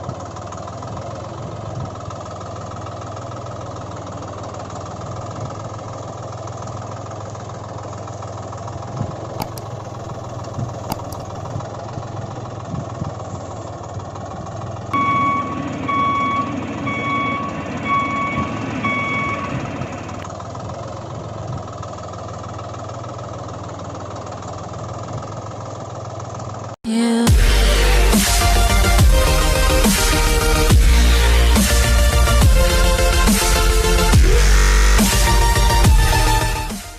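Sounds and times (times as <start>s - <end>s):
vehicle engine running: 0.0s - 36.9s
reversing alarm beeping: 15.0s - 20.2s.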